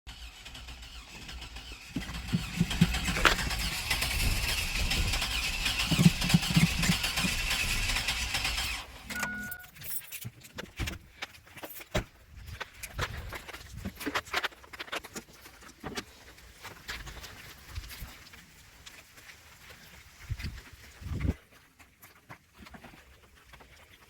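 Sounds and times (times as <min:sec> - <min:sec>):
car starter cranking: 0:00.1 - 0:09.6
short electronic beep: 0:09.1 - 0:09.8.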